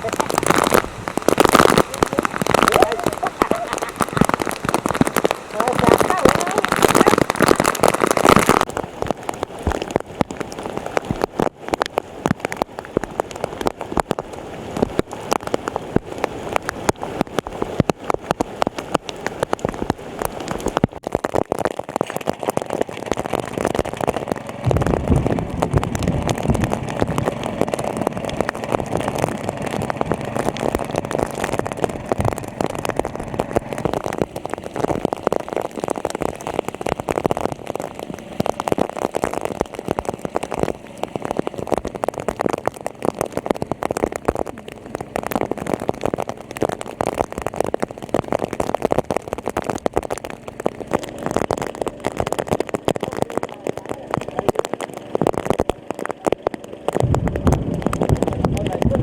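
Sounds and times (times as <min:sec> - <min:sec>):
rain pattering: 0:00.0 - 0:59.0
low engine hum: 0:21.9 - 0:59.0.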